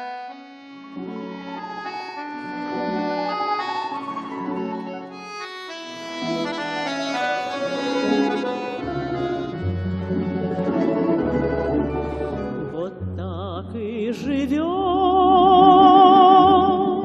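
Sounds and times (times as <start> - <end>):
accordion melody: 0.0 - 13.2
bass notes: 8.0 - 17.0.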